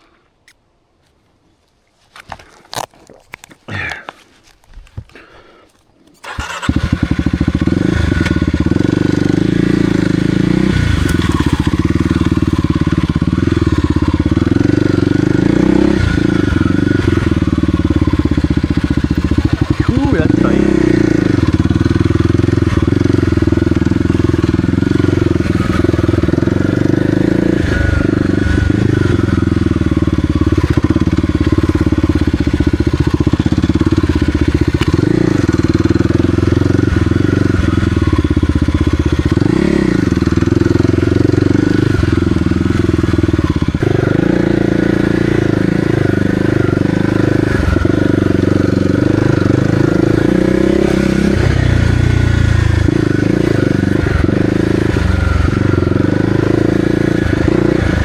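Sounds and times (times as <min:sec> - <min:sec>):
dirt bike engine running: 0:06.2 - 0:58.0.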